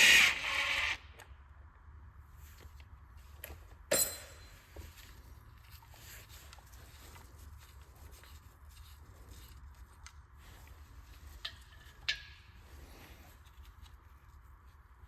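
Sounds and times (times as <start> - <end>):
power ratchet whirring: 0.0 - 1.0
sharp metal clank: 3.9 - 4.6.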